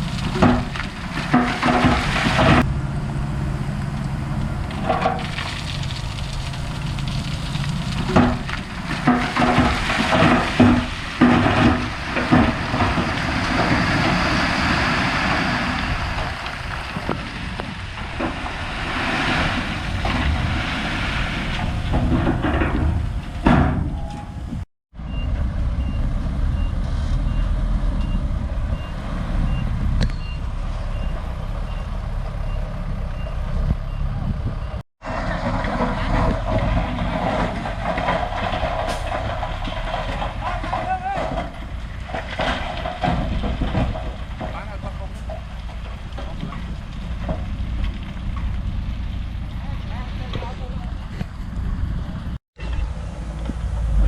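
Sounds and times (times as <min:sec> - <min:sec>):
diesel earthmoving machinery running: 0:00.0 - 0:54.0
metallic clanks and knocks: 0:00.2 - 0:02.7, 0:04.7 - 0:05.5, 0:07.6 - 0:14.0, 0:21.5 - 0:24.6, 0:35.1 - 0:48.6.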